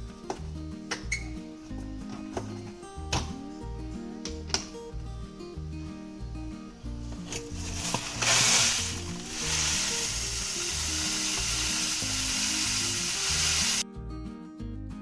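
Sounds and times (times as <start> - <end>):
coarse salt pouring: 7.2 - 13.8.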